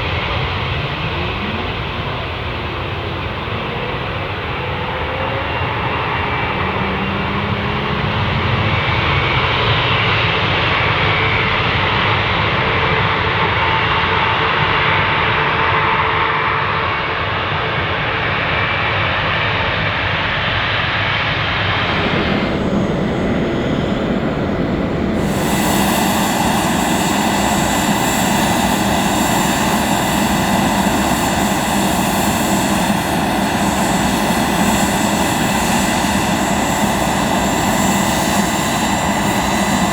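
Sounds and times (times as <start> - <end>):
jet engines running: 0.0 - 15.8, 19.9 - 39.9.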